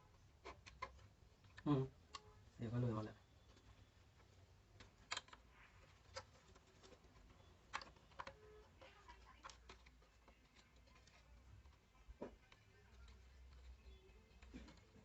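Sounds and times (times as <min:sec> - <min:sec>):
faint sharp clicks and taps: 0:03.4 - 0:15.0.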